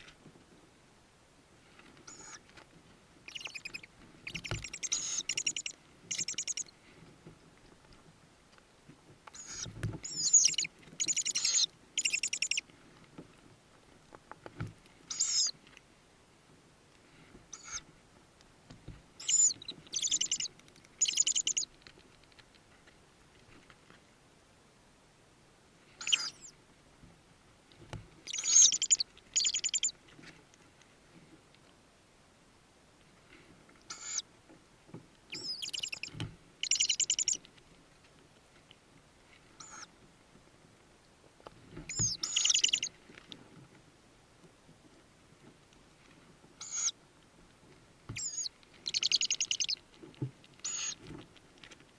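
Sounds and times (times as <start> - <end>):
owl nestlings squeaking: 2.1 - 2.4, 3.3 - 6.7, 9.4 - 12.6, 15.1 - 15.5, 17.5 - 17.8, 19.2 - 21.7, 26.0 - 26.5, 28.3 - 29.9, 33.9 - 34.2, 35.3 - 37.4, 39.6 - 39.9, 41.9 - 42.9, 46.6 - 46.9, 48.2 - 49.8, 50.6 - 51.0.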